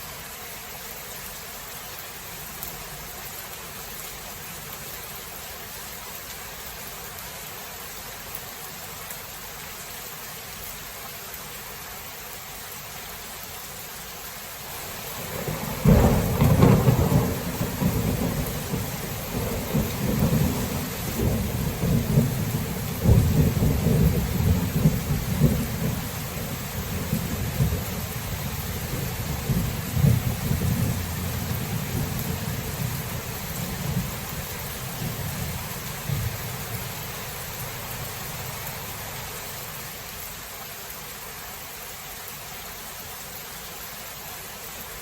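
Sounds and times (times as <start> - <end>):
steady rain falling: 0.0 - 45.0
thunder rumbling: 14.9 - 39.1.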